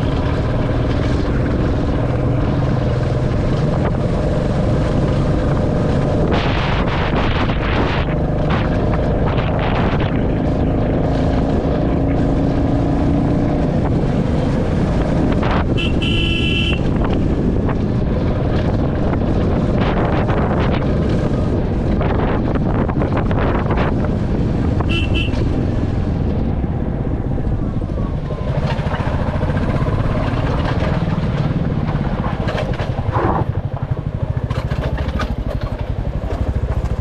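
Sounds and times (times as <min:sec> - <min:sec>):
motorcycle engine running: 0:00.0 - 0:37.0
wind buffeting microphone: 0:00.0 - 0:37.0
motorcycle horn: 0:15.7 - 0:17.0, 0:24.8 - 0:25.6.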